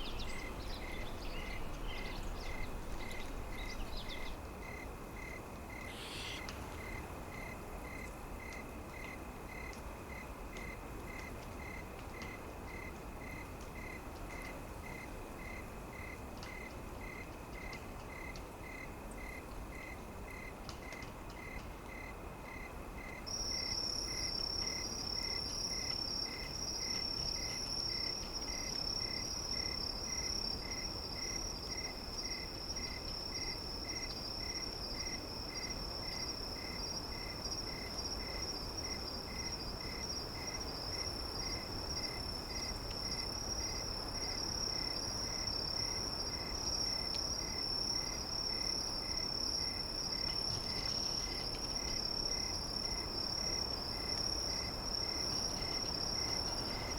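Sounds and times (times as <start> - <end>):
high insect trill: 0.0 - 7.6
insects chirping: 0.0 - 10.2, 12.7 - 56.9
soft low hiss: 0.0 - 56.9.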